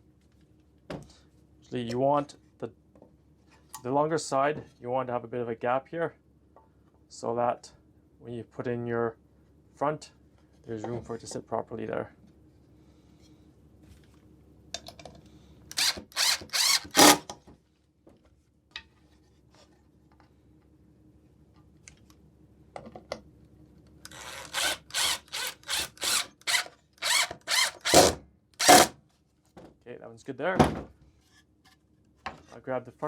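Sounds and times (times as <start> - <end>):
power drill driving screws: 15.7 - 17.3, 24.1 - 28.9.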